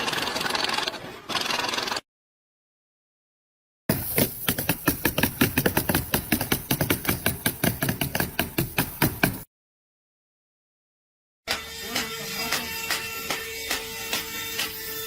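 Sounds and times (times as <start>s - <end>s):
rapid hammering knocks: 3.9s - 9.5s.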